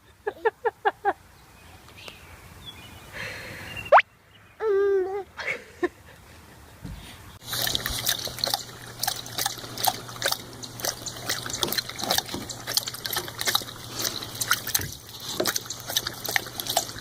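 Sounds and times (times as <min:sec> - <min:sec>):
steady low hum: 0:07.4 - 0:17.0
water splashing and trickling: 0:07.4 - 0:17.0.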